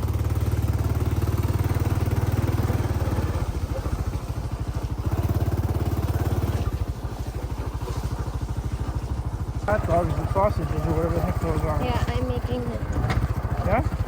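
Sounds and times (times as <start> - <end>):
motorcycle engine putter: 2.7 - 14.0.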